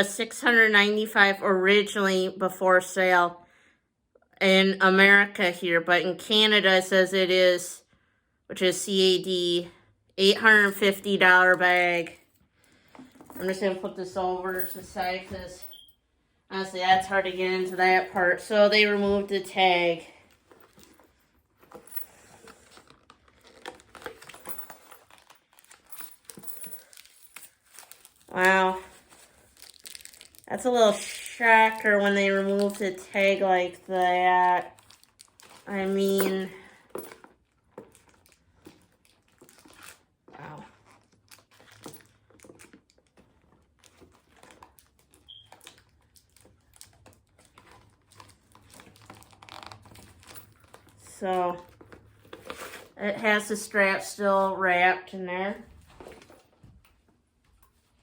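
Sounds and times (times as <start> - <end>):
packaging crinkling and rustling: 20.2 - 32.8, 33.9 - 53.0.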